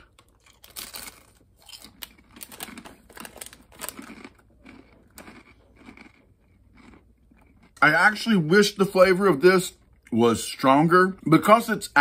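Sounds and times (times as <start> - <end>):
person chewing crispy food: 0.0 - 8.5.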